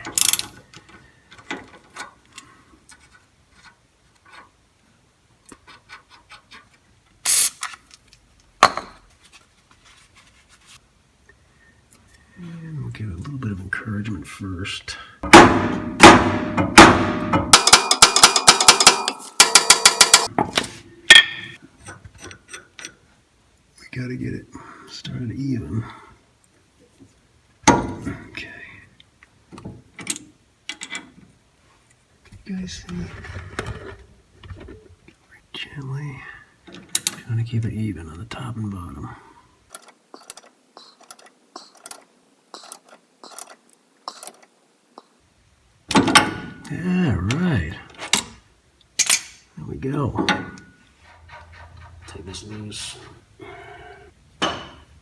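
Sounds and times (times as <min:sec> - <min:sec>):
ratchet wrench clicking: 0:00.0 - 0:00.5, 0:07.3 - 0:07.7, 0:42.6 - 0:44.4
sharp metallic clank: 0:15.2 - 0:20.3.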